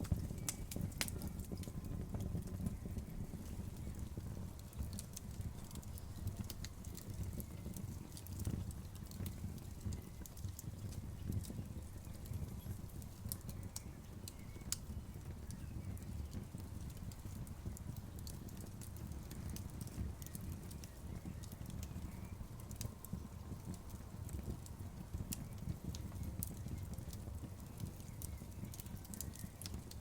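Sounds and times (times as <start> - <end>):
bonfire burning rumble: 0.0 - 30.0
fire pops and snaps: 0.0 - 30.0.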